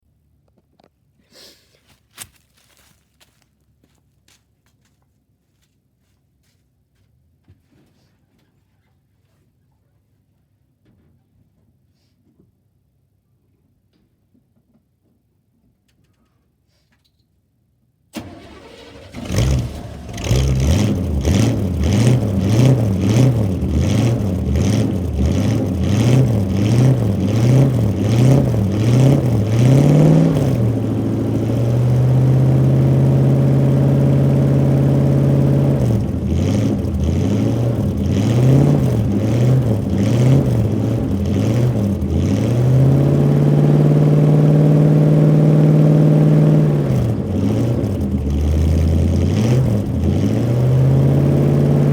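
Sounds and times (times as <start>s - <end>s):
pickup engine starting: 18.1s - 51.9s
engine revving: 18.2s - 51.9s.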